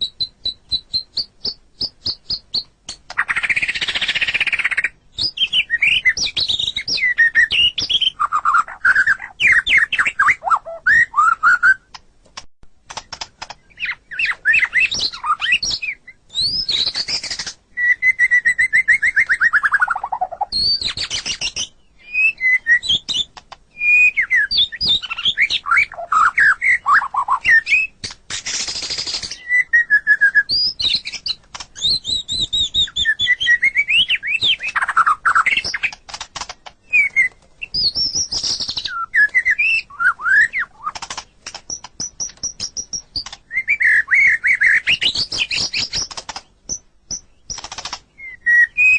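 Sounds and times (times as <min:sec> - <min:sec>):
bird singing whistled phrases: 0:00.0 - 0:11.9, 0:13.6 - 0:28.0, 0:28.7 - 0:36.0, 0:36.8 - 0:41.0, 0:41.7 - 0:46.1, 0:48.2 - 0:48.9
harsh raspy bird calls: 0:08.1 - 0:11.9.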